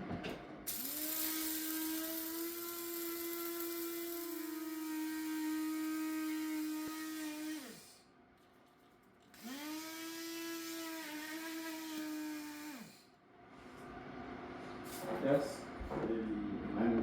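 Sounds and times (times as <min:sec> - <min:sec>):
small electric motor humming: 0:00.7 - 0:08.0, 0:09.4 - 0:13.2.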